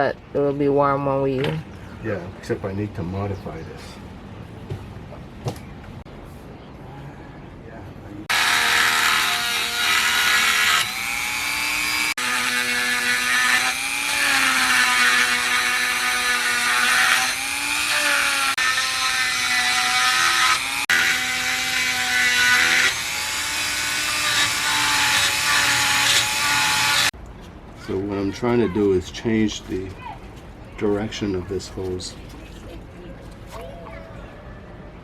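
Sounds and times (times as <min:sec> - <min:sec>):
electric power tool grinding: 0:08.3 - 0:27.1.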